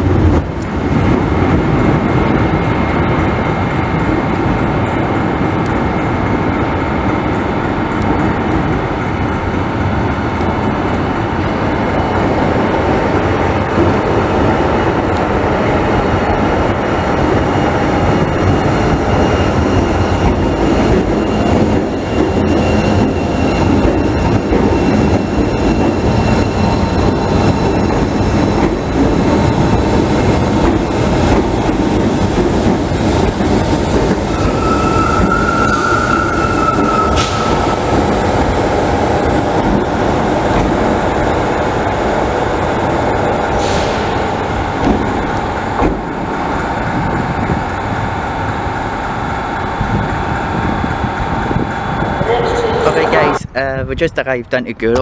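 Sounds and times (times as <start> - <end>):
train wheels rumbling on rail: 0.0 - 55.0
train wheel squeal: 14.7 - 31.2, 33.2 - 53.4.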